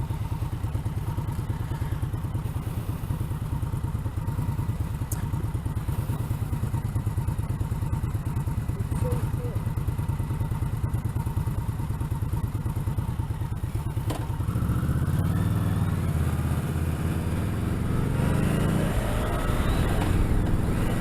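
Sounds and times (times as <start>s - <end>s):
motorcycle engine idling and accelerating: 0.0s - 21.0s.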